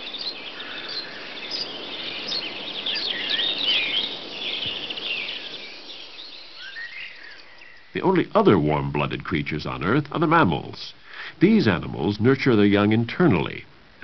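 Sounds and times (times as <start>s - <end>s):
birds chirping and singing: 0.0s - 12.2s.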